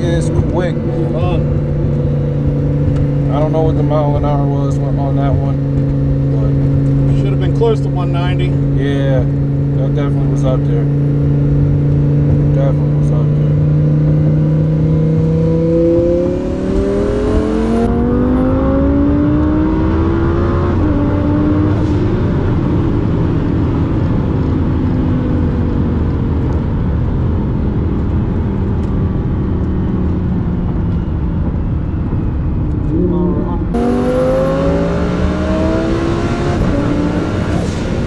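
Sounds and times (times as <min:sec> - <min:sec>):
car engine at full throttle: 0:00.0 - 0:38.0
wind and road noise: 0:00.0 - 0:38.0.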